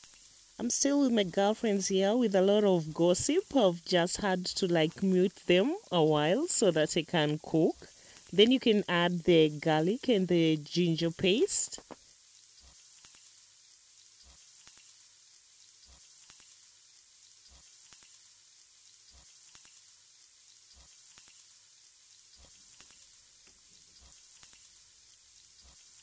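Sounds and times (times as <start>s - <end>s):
chicken frying in oil: 0.0s - 26.0s.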